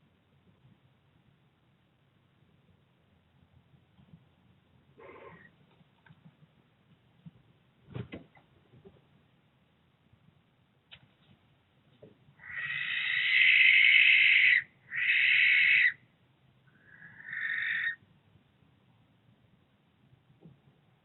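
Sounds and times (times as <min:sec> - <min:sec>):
barn owl screeching: 0:05.0 - 0:05.5, 0:12.4 - 0:16.0, 0:16.7 - 0:18.0.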